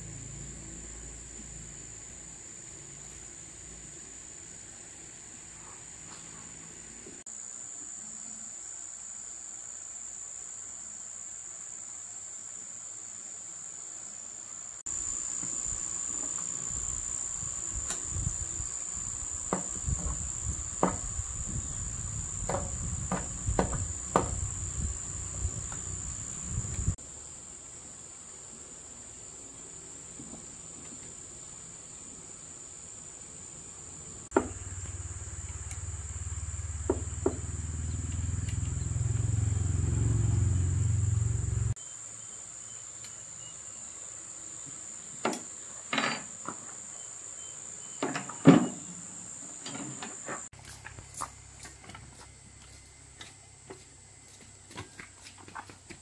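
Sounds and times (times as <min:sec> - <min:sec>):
insects chirring: 0:00.0 - 0:56.0
irregular knocks and clicks: 0:22.4 - 0:24.4.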